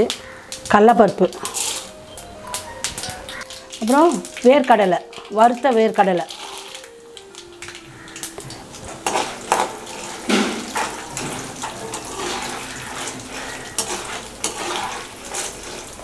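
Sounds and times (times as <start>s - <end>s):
food sizzling in hot oil: 0.0s - 16.0s
metal spoon scraping and clinking pan: 1.3s - 2.0s, 8.8s - 16.0s.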